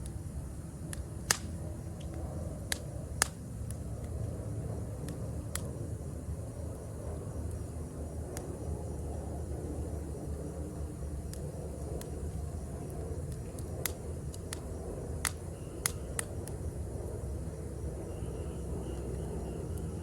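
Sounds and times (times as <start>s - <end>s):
campfire crackling and popping: 0.0s - 18.0s
faint insects chirping: 0.0s - 20.0s.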